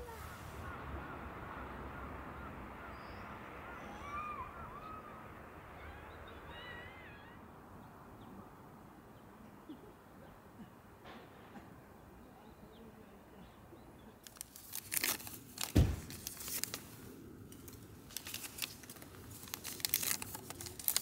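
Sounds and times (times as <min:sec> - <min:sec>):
wild birds chirping: 0:00.0 - 0:15.0
low outdoor background hum: 0:00.0 - 0:21.0.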